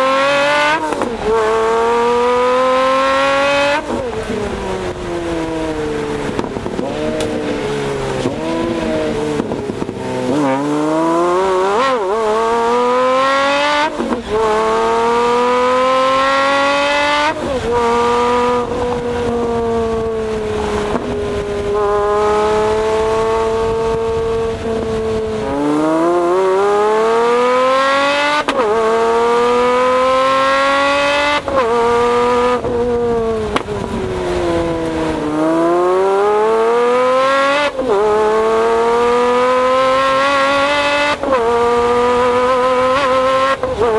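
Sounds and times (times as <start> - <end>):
car exhaust accelerating hard: 0.0 - 43.9
exhaust cracks on upshifts: 6.1 - 12.4, 27.4 - 36.2.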